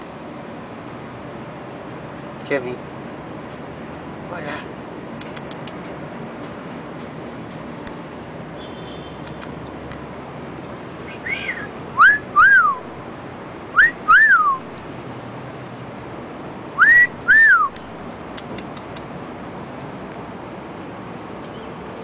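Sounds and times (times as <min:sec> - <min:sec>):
light clicks: 0:05.2 - 0:08.0, 0:17.8 - 0:19.1
parrot whistling: 0:11.0 - 0:12.8, 0:16.8 - 0:17.7.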